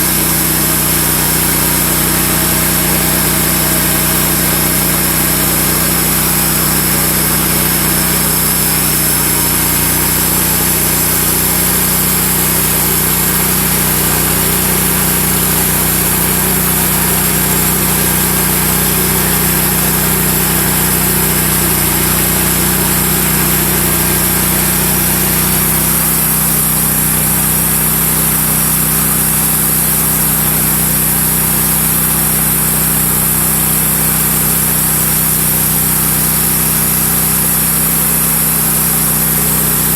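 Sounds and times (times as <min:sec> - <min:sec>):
bandsaw cutting through log: 0:00.0 - 0:39.9.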